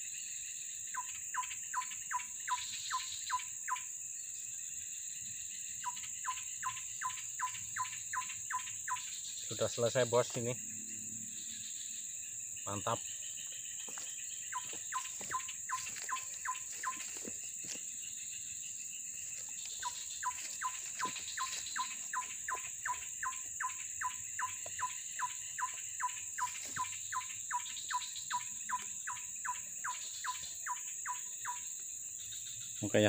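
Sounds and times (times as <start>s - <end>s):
high insect drone: 0.0s - 33.0s.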